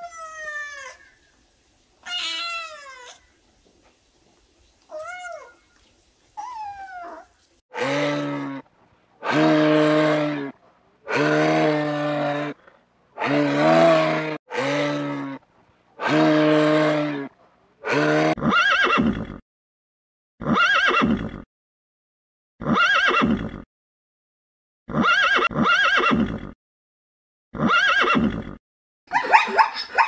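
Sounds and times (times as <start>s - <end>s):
horse whinnying: 11.1s - 12.6s, 13.2s - 15.4s, 17.8s - 19.4s, 20.4s - 21.4s, 22.6s - 23.6s, 24.9s - 26.6s, 27.6s - 28.6s.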